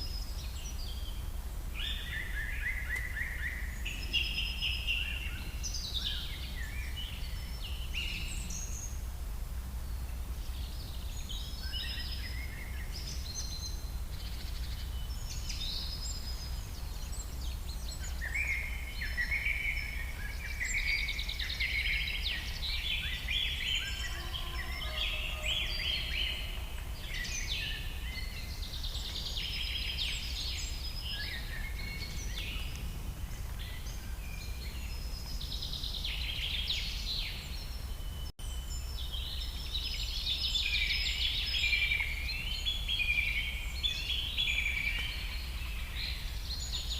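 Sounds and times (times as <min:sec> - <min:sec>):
songbirds chirping and trilling: 0:00.0 - 0:46.9.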